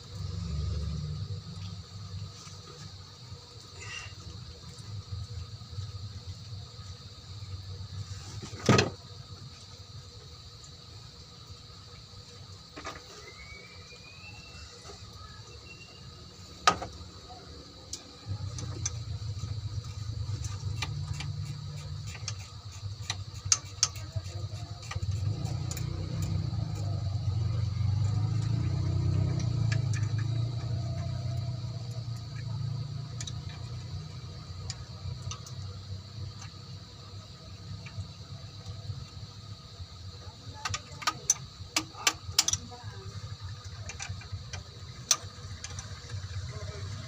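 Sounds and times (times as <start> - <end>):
low engine hum: 0.0 - 7.9, 13.2 - 23.0, 24.0 - 42.0
small metal clicks: 40.6 - 42.7.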